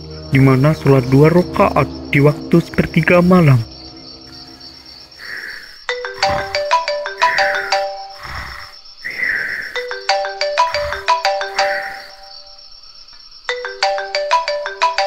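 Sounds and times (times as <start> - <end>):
crickets chirring: 0.0 - 15.0
phone ringtone melody: 5.9 - 8.4, 9.7 - 12.6, 13.5 - 15.0.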